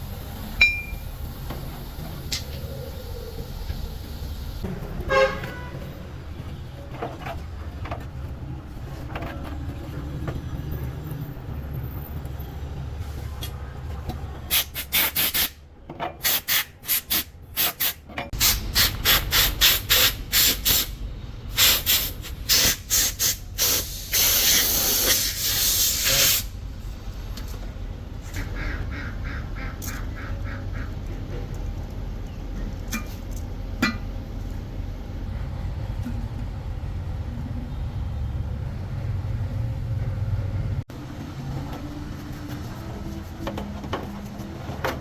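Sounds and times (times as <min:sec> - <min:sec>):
loud hissing blasts: 0:18.4 - 0:26.6.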